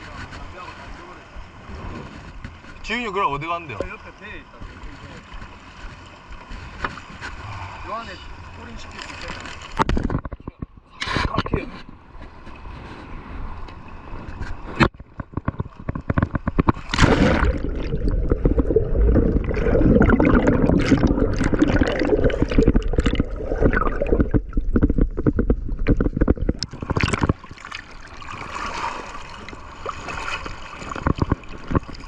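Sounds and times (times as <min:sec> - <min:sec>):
water gurgling and sloshing: 0:00.0 - 0:32.0
sharp clicks and knocks: 0:09.8 - 0:11.7, 0:14.4 - 0:17.0, 0:22.3 - 0:27.5, 0:30.9 - 0:32.0.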